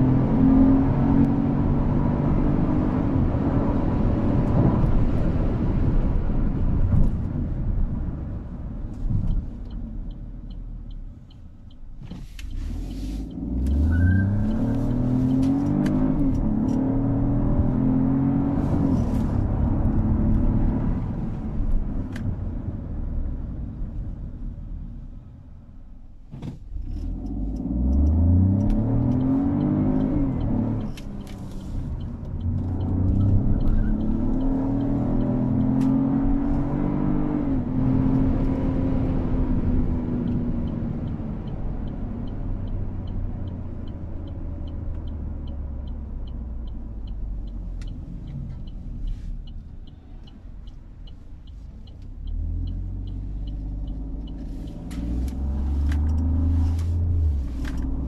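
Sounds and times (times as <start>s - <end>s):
car engine accelerating: 0.0s - 25.5s, 26.3s - 58.0s
road noise: 0.0s - 58.0s
light regular ticking: 9.3s - 13.8s, 26.7s - 58.0s.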